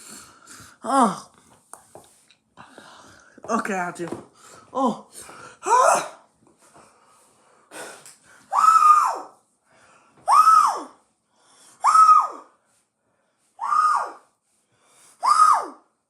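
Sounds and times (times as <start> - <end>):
boy wailing in pain: 5.6 - 6.2.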